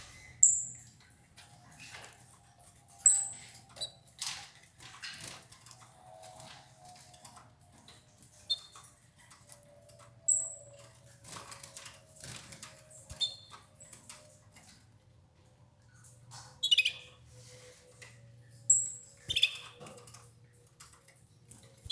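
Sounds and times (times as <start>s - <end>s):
birds pecking and tearing leaves: 1.0s - 14.9s.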